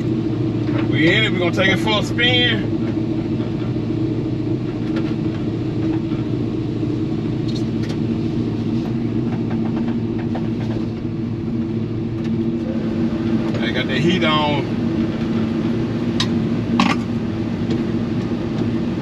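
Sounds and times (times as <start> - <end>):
pickup engine idling: 0.0 - 19.0.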